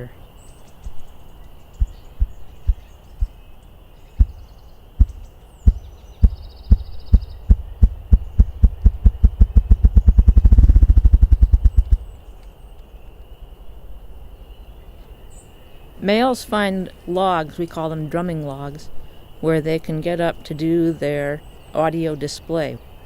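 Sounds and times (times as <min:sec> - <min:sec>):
bird chirps: 0:00.0 - 0:13.4, 0:14.3 - 0:23.0
faint insect drone: 0:00.0 - 0:23.0
ruffed grouse drumming thumps: 0:01.7 - 0:03.4, 0:04.2 - 0:12.1.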